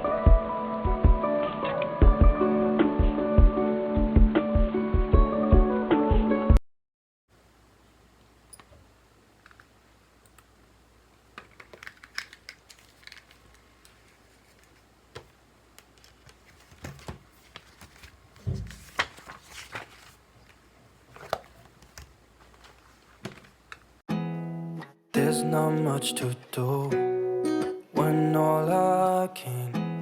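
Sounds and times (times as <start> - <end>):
heavy thump: 18.4 - 18.8.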